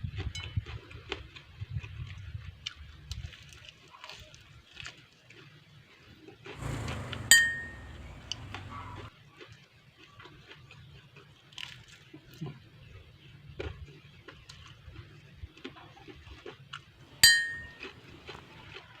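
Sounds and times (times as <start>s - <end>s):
tableware clink: 7.2s - 7.8s, 17.2s - 17.9s
crunching of fried snacks: 10.0s - 12.4s.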